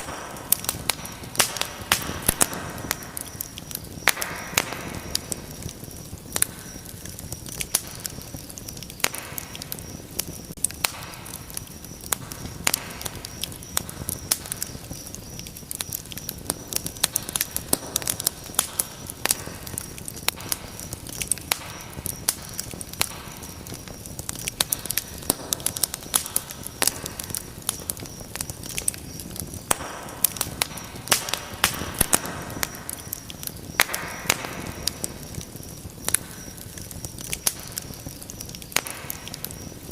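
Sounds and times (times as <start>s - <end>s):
fire crackling in fireplace: 0.0s - 39.9s.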